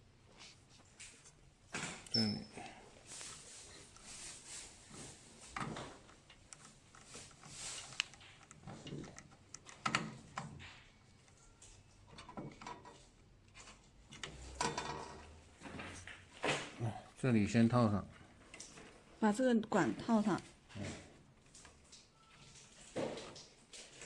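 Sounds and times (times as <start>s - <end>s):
small parts clicking and tapping: 5.5s - 15.2s.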